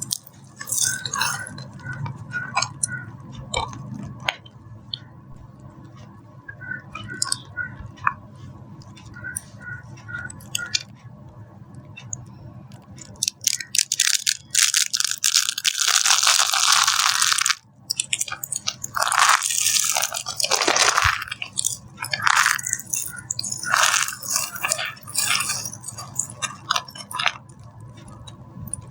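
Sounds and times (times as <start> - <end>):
soap crunching and crackling: 13.0 - 28.9.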